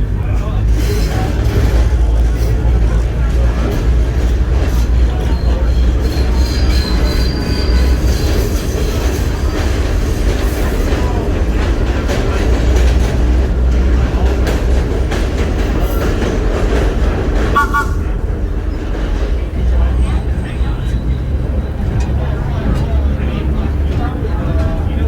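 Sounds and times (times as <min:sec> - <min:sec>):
subway train rumbling on rails: 0:00.0 - 0:25.0
high wheel squeal: 0:05.3 - 0:09.6.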